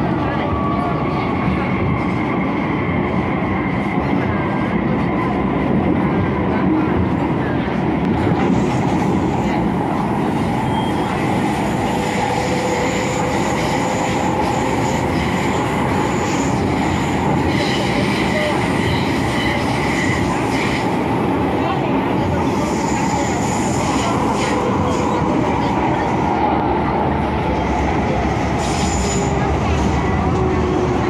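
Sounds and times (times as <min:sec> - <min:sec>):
train wheels rumbling: 0:00.0 - 0:31.0.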